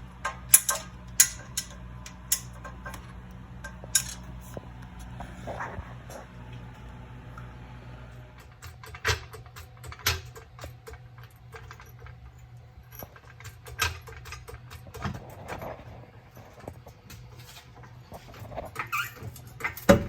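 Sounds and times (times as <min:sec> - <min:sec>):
low steady hum: 0:00.0 - 0:09.0
hand tools clicking and knocking: 0:00.2 - 0:04.4, 0:08.4 - 0:15.6.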